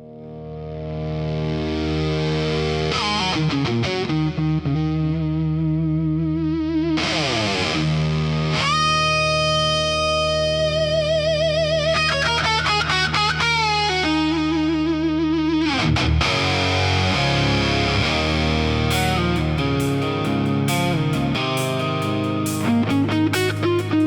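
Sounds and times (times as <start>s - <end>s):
overdriven electric guitar solo: 0.0s - 24.0s
steady low bass note: 16.6s - 24.0s.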